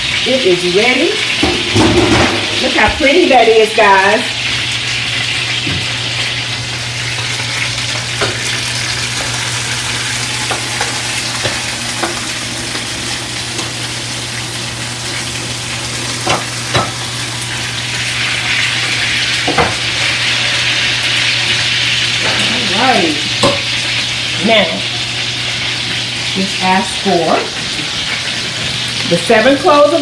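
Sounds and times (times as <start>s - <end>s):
food sizzling in a pan: 0.0s - 30.0s
cookware knocks: 16.2s - 17.0s, 23.4s - 23.7s.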